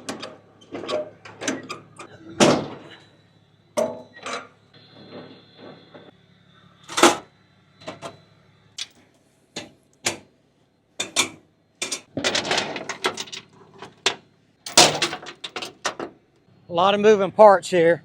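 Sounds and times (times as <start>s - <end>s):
clattering: 11.8s - 16.1s.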